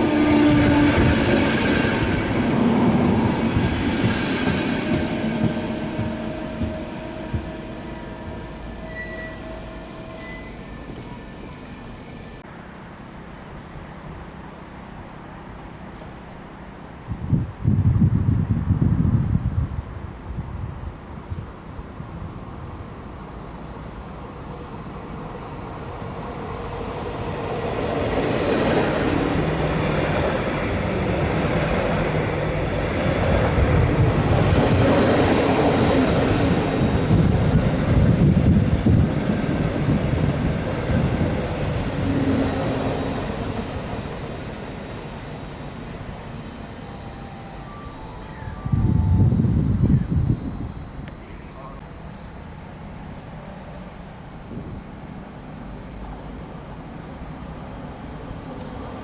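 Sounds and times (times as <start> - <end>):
train wheels rumbling on rails: 0.0 - 12.5, 23.6 - 51.4.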